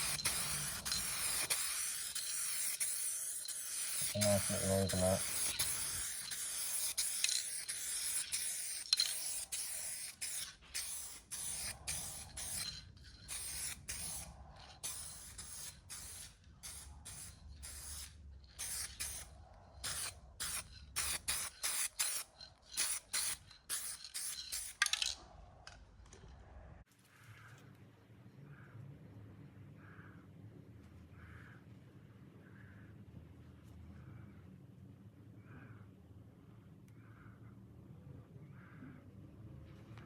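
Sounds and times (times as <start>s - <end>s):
aerosol spray can hissing: 0.0s - 12.7s, 13.3s - 24.8s.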